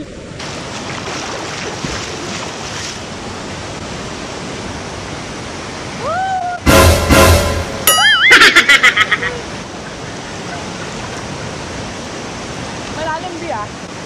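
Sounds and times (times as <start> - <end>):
waterfall: 0.0 - 14.0
river water rushing: 0.1 - 6.8, 8.9 - 14.0
swimmer splashing: 0.4 - 3.8
loud music: 6.7 - 8.2.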